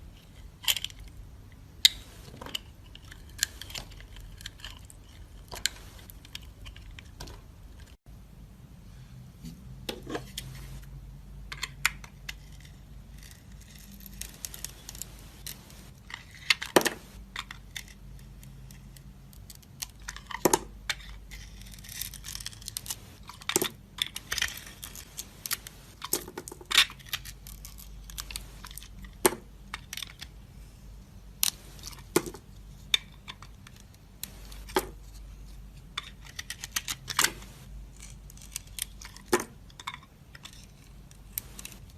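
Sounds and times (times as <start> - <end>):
knife carving dry soap: 12.4 - 16.8, 17.5 - 30.2, 37.6 - 41.9.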